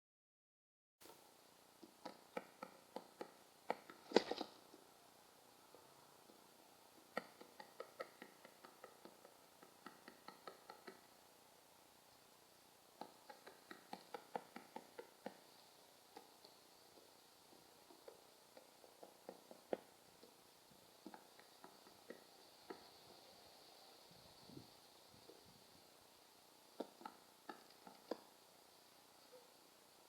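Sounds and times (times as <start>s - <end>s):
bird pecking at hard surface: 1.8s - 4.8s, 5.7s - 11.1s, 13.0s - 23.4s, 26.8s - 28.4s.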